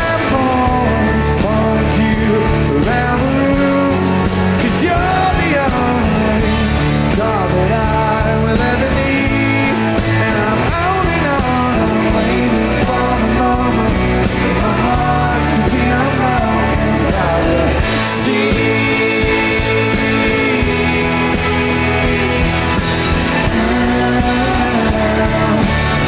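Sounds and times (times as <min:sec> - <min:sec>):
rock band playing loudly: 0:00.0 - 0:26.0.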